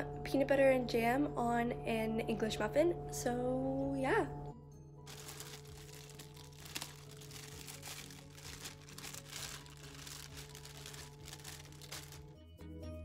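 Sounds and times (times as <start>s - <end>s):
plastic bag crinkling: 5.1s - 12.3s.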